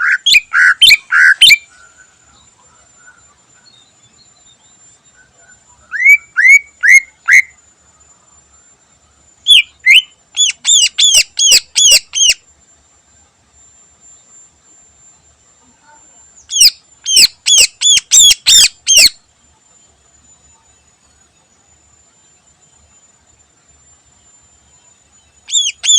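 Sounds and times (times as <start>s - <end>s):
bird calling in sharp notes: 0.0s - 1.7s, 5.9s - 7.6s, 9.5s - 12.4s, 16.5s - 19.2s, 25.5s - 25.9s.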